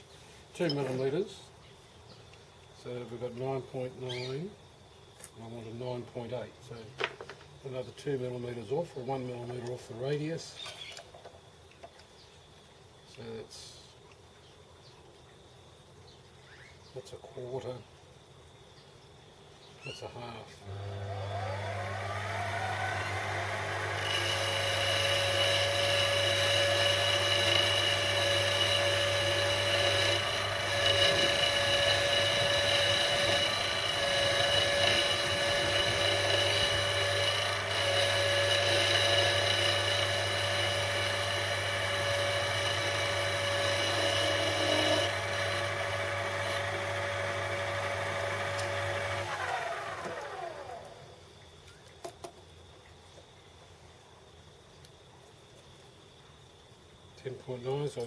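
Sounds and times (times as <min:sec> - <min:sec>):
lathe spinning down: 0:20.7 - 0:51.0
lathe tool cutting with high ring: 0:21.4 - 0:49.6.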